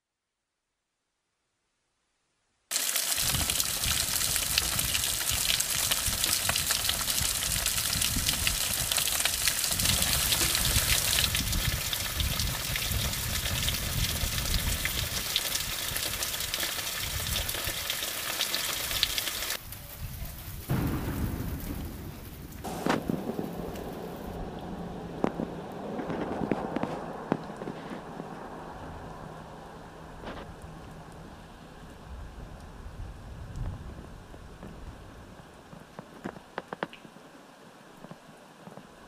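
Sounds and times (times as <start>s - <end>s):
heavy rain on plants: 2.7s - 39.0s
low rumble: 20.6s - 35.2s.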